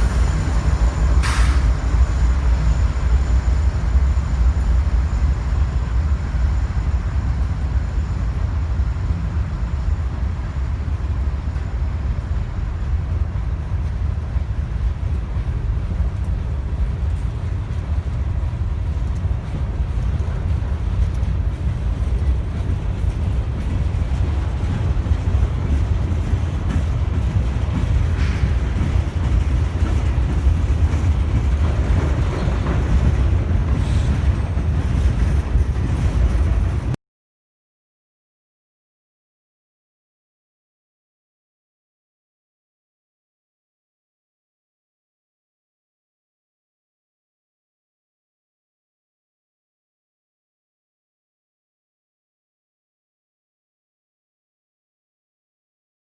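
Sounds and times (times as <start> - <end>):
train rolling past: 0.0 - 37.0.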